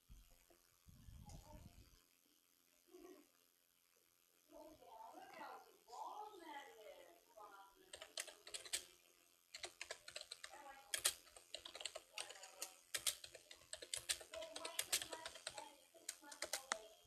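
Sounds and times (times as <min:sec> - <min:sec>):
faint voice: 0:14.1 - 0:17.0.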